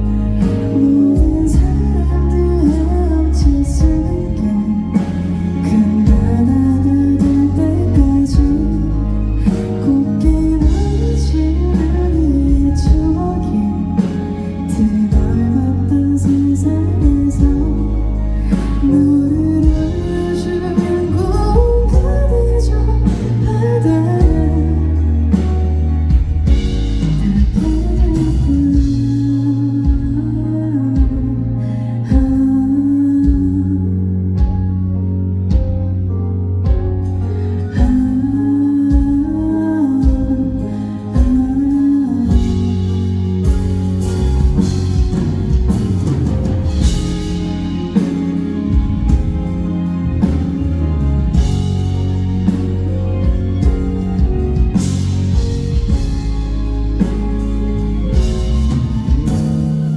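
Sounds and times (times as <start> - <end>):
woman singing: 0.0 - 34.6, 37.6 - 45.5
live band playing: 0.0 - 59.9.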